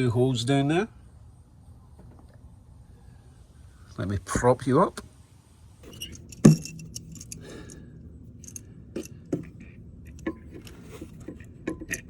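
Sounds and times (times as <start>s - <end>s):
clicks and clinks of hand tools: 5.9s - 7.8s, 8.4s - 9.5s.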